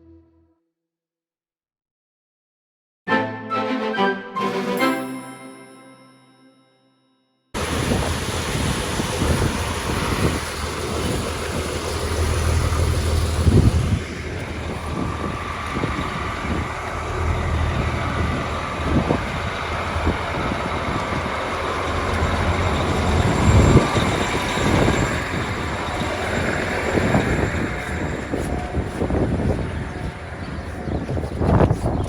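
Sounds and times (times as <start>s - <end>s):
tractor diesel engine running: 7.6s - 32.0s.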